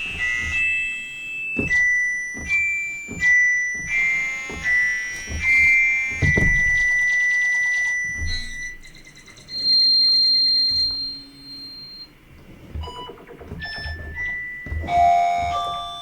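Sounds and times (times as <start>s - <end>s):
low thump: 4.6s - 7.0s.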